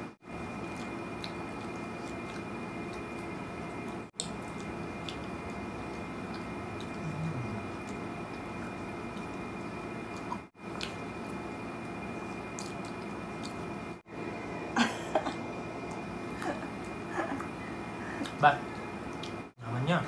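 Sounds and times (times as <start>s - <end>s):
people chewing wet fruit: 0.4s - 14.0s, 15.8s - 19.5s
throat or mouth sound: 6.7s - 8.0s.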